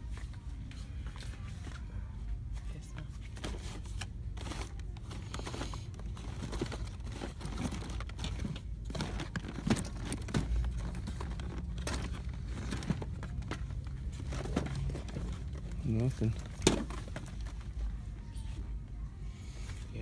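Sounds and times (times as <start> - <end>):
boxed toys rustling and clicking: 0.0 - 18.7
steady low hum: 0.0 - 20.0.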